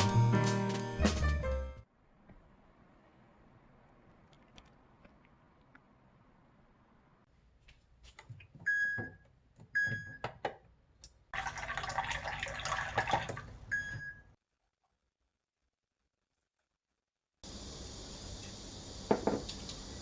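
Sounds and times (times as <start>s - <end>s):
running water: 11.3s - 13.5s.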